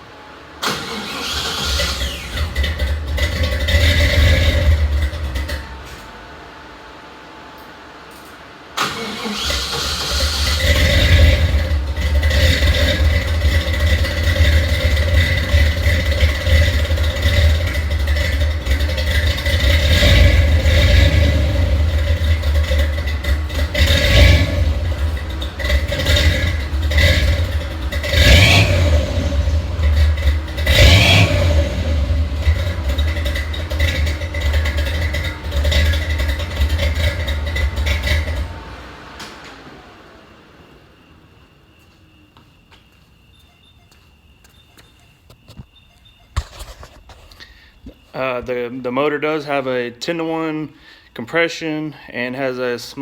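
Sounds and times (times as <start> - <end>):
engine starting and rumbling: 0.0 - 7.0, 8.1 - 42.3.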